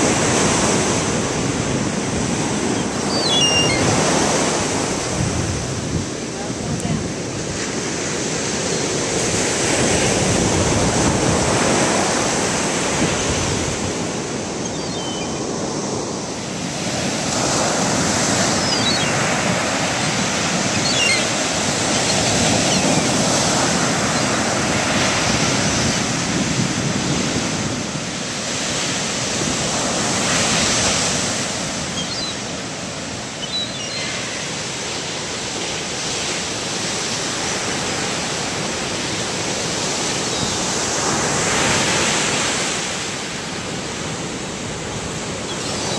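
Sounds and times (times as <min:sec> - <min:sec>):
ocean surf breaking: 0:00.0 - 0:45.9
faint short high calls: 0:02.8 - 0:04.1, 0:14.6 - 0:15.5, 0:18.5 - 0:19.2, 0:20.6 - 0:23.2, 0:33.3 - 0:34.5.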